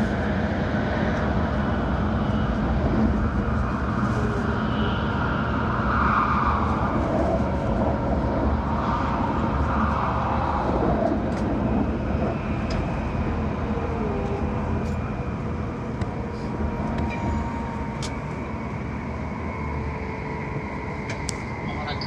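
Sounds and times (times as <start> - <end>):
train rumbling and rushing: 0.0 - 22.0.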